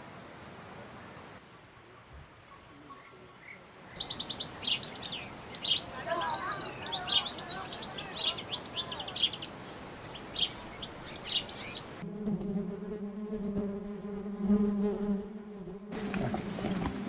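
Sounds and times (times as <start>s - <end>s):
small birds chirping: 2.3s - 12.0s
flying insect buzzing: 11.6s - 17.0s.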